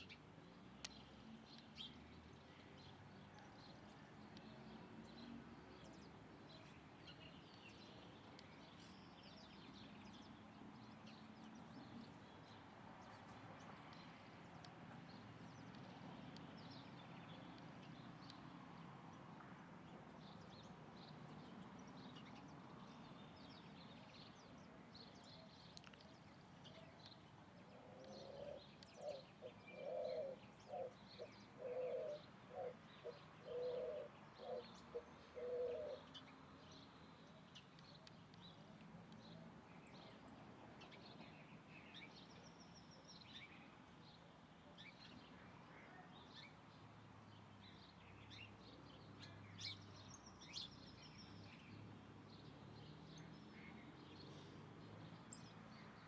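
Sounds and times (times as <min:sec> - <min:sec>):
dove cooing: 0:27.8 - 0:31.0, 0:31.6 - 0:36.0.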